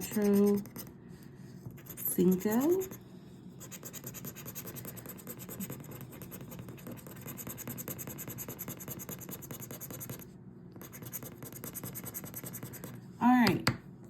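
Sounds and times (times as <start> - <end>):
scraping scratch-off ticket: 0.0 - 0.7, 1.8 - 3.0.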